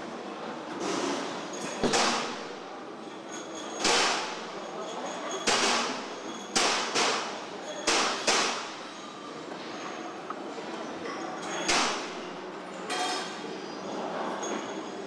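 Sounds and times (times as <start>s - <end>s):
factory floor din: 0.8s - 2.8s, 3.8s - 4.7s, 5.4s - 9.0s, 11.6s - 12.4s
sharp bangs: 6.6s - 8.8s.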